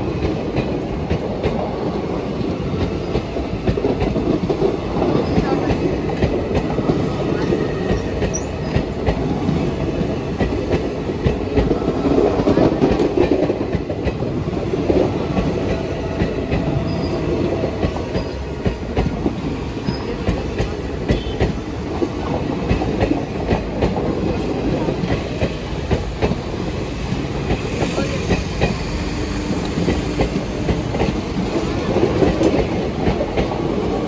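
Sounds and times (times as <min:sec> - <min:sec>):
train wheels rumbling on rails: 0:00.0 - 0:34.0
wheels clicking over rail joints: 0:27.1 - 0:33.9.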